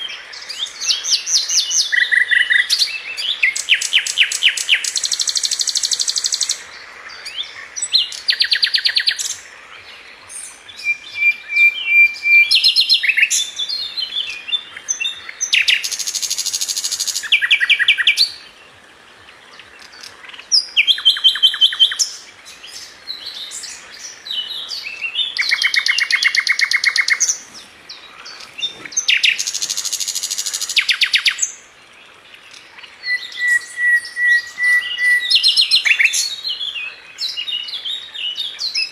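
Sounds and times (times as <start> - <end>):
bird chirps: 7.2 - 18.4, 32.4 - 38.9.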